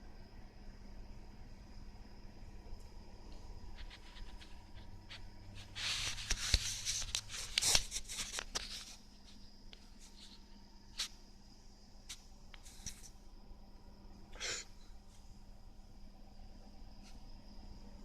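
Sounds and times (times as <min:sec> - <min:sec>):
faint steady hum: 0:00.0 - 0:18.0
crinkly rustling and scraping: 0:03.3 - 0:11.1, 0:12.6 - 0:13.2.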